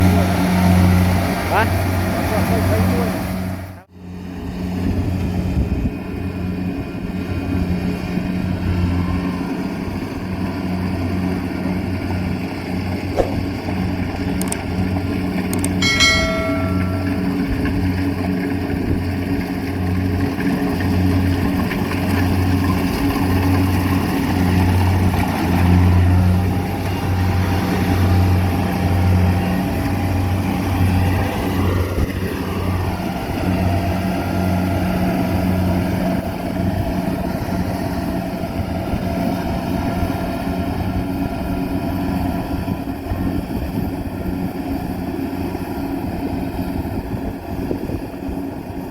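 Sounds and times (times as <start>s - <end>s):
combine harvester engine humming: 0.0s - 48.9s
short ringing tone: 15.6s - 17.8s.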